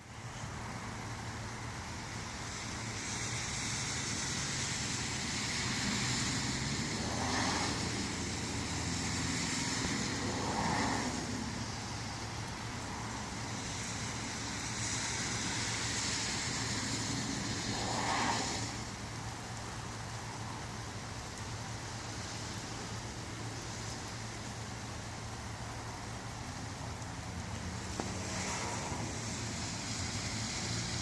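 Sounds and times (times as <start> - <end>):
rain hissing: 0.0 - 31.0.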